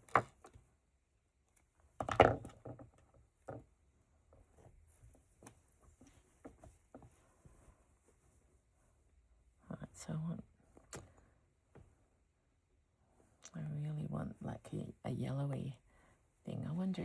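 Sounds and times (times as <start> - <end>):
small taps and rustles: 1.5 - 9.0.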